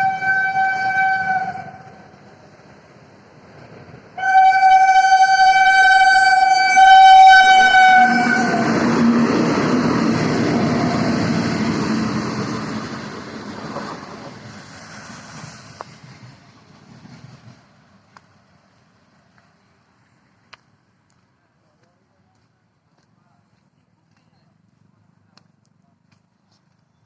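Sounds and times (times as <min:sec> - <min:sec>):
train horn blast: 0:00.0 - 0:02.0, 0:04.2 - 0:09.7
train rumbling past: 0:00.0 - 0:20.0.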